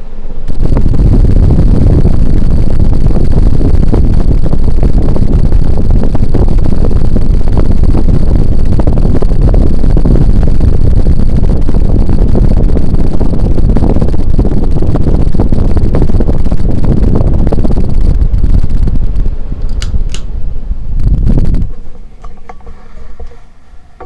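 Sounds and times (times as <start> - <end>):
ceiling fan wind buffeting microphone: 0.0 - 24.0.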